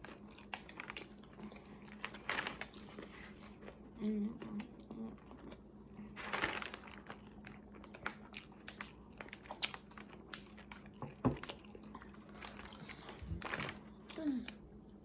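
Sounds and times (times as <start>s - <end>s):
crunchy chewing: 0.0s - 14.2s.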